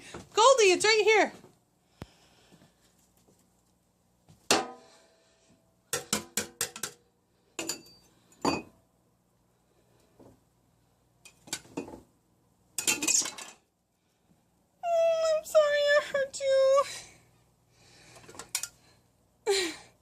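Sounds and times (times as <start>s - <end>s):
dishes and utensils clattering: 12.8s - 13.6s.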